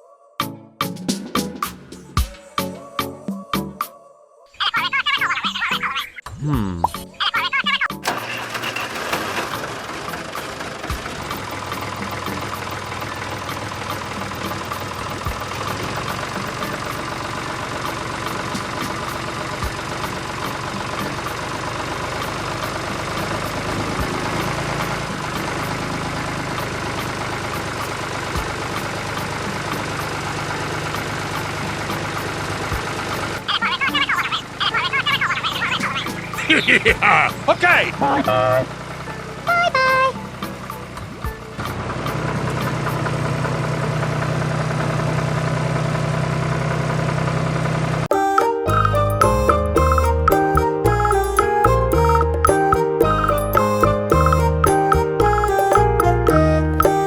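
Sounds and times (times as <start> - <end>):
music jingle: 6.5 - 20.2, 35.5 - 41.6, 48.1 - 57.0
cultivator motor running: 8.0 - 33.6.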